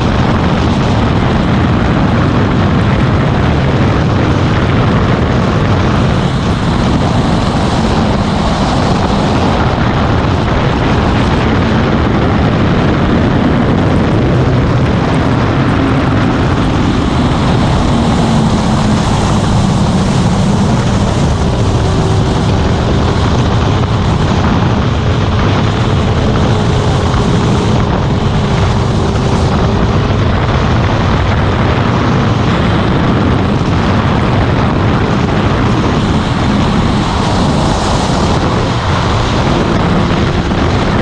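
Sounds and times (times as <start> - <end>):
loud rushing noise: 0.0 - 41.0
motorcycle engine: 0.0 - 41.0.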